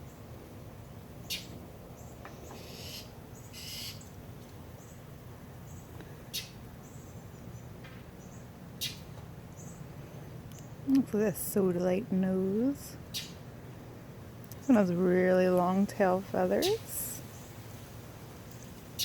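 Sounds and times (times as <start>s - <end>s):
bird chirping: 1.2s - 4.2s, 5.6s - 9.8s, 13.1s - 13.4s.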